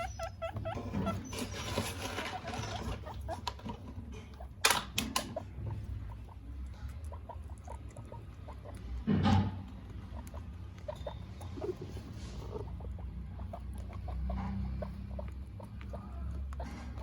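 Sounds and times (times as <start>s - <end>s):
guinea pigs squeaking: 0.0s - 17.0s.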